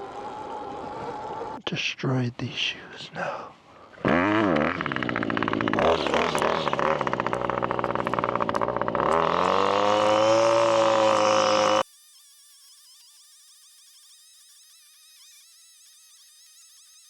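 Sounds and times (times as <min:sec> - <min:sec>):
pit bike engine revving: 0:03.2 - 0:11.8.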